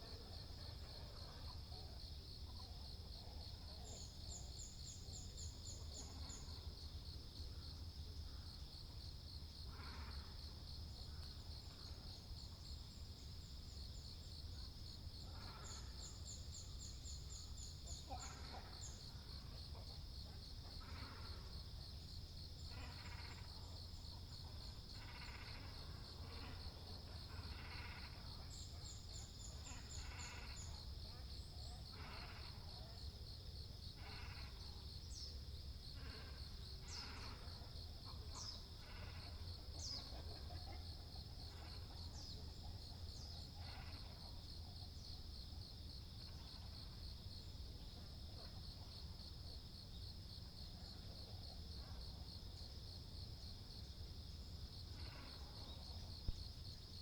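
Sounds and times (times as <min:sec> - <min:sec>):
high-pitched insect trill: 0:20.8 - 0:35.5.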